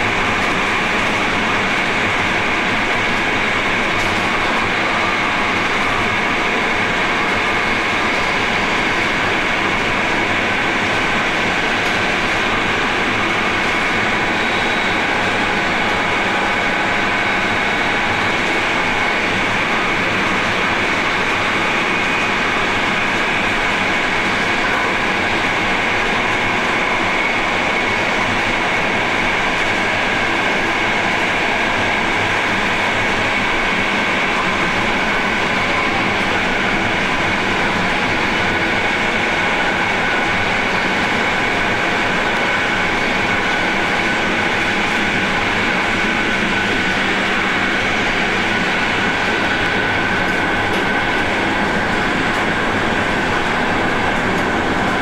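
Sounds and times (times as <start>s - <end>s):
train wheels on rail: 0.0s - 55.0s.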